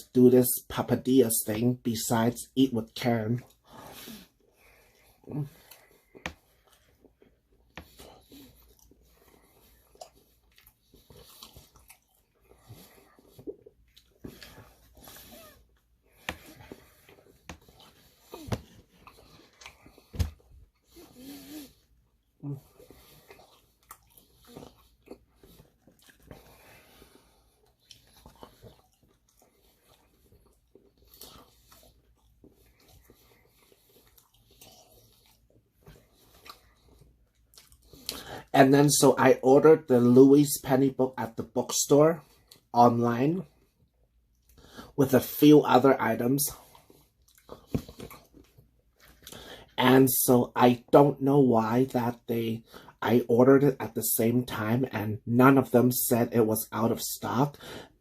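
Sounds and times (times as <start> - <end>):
person chewing: 3.4 - 38.4, 46.5 - 49.8.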